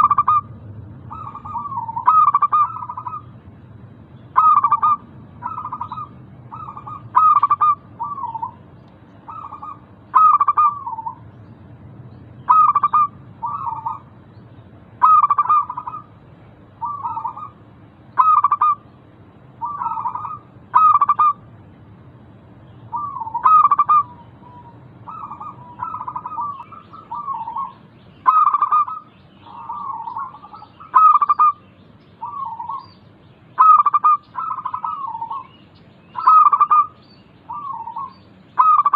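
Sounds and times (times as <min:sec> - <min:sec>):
dove cooing: 0:00.0 - 0:00.5, 0:01.1 - 0:03.3, 0:04.3 - 0:08.6, 0:09.2 - 0:11.2, 0:12.4 - 0:14.1, 0:15.0 - 0:16.2, 0:16.8 - 0:17.6, 0:18.2 - 0:18.8, 0:19.6 - 0:21.4, 0:22.9 - 0:31.6, 0:32.2 - 0:32.9, 0:33.6 - 0:38.9.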